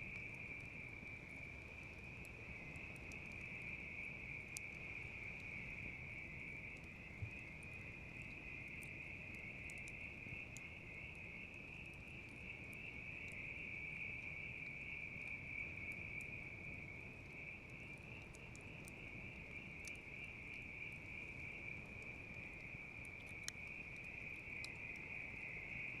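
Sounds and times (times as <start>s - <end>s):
campfire crackling and popping: 0.0s - 26.0s
crickets trilling: 0.0s - 26.0s.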